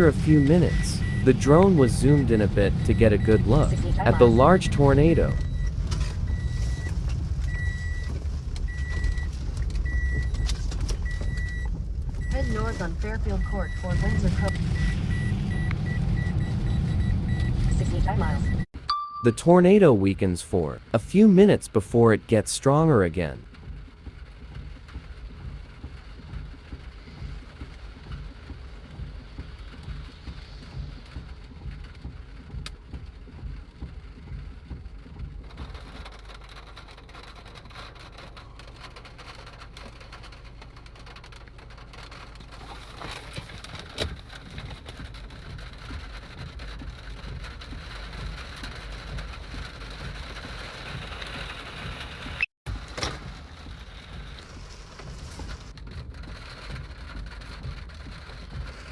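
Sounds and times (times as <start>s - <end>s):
steady rain: 0.0s - 18.6s, 23.4s - 58.9s
wind: 0.0s - 58.9s.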